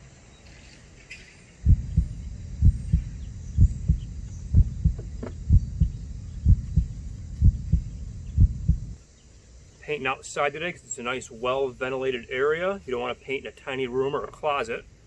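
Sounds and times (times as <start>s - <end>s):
low double thumps: 1.6s - 9.0s.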